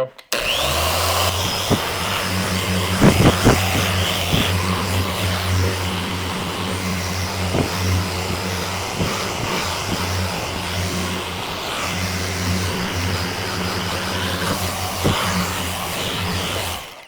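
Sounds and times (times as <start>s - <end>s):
orbital sander humming: 0.3s - 17.0s.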